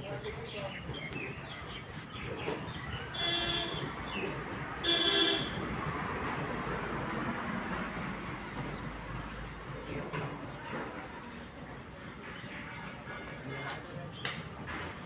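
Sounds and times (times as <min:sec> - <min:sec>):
vehicle horn honking: 0:03.1 - 0:03.9, 0:04.8 - 0:05.7.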